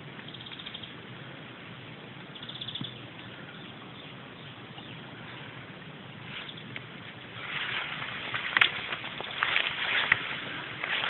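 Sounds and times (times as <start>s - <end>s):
flowing stream water: 3.8s - 11.0s.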